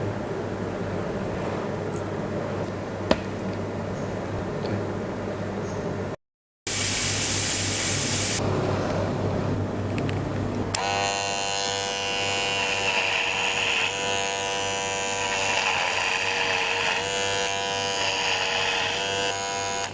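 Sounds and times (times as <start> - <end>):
hiss: 6.7 - 8.4
electric hair clipper buzzing: 10.7 - 19.9.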